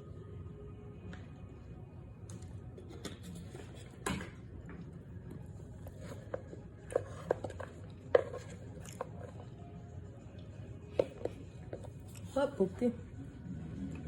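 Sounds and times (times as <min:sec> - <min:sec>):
person chewing starch: 0:08.6 - 0:09.3.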